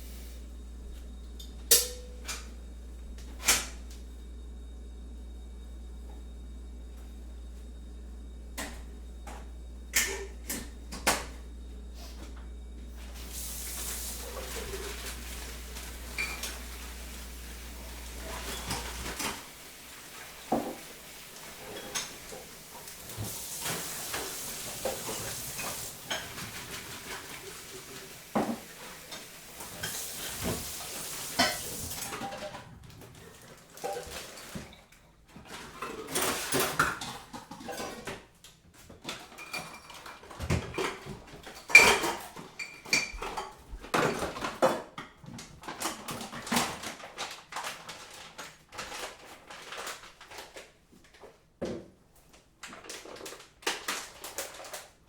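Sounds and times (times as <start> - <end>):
crockery and cutlery clinking: 1.4 - 2.4.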